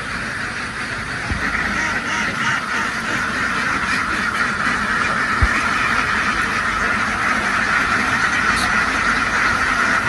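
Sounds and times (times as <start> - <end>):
ducks quacking: 0.0 - 10.0.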